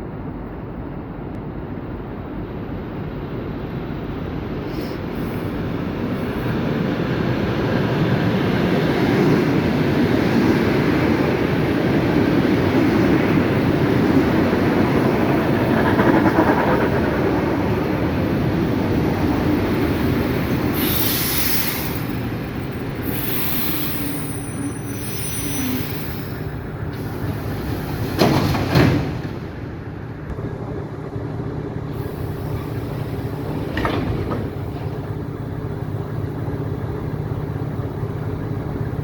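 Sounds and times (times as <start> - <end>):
short bursts of hiss: 20.8 - 22.2, 23.0 - 26.4
train wheels clattering over rails: 25.1 - 30.5, 32.1 - 35.8.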